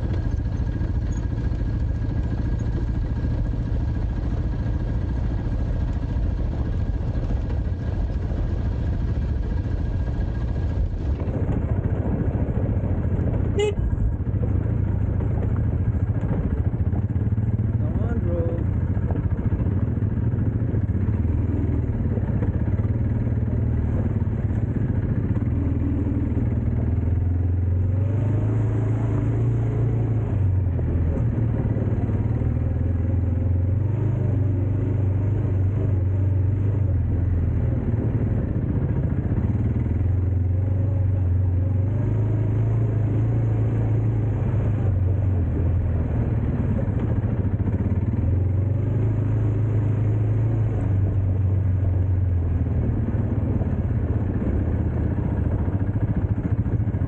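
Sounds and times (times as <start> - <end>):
rattling over rough ground: 0.0 - 28.0
dirt bike engine running: 0.0 - 57.0.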